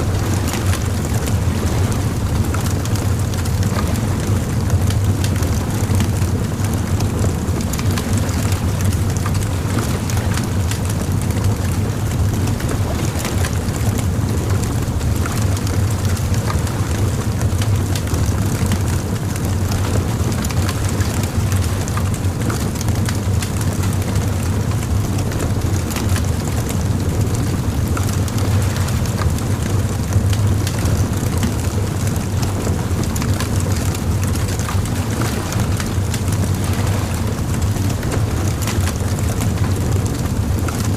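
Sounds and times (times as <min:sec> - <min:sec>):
bonfire crackling and popping: 0:27.5 - 0:40.9.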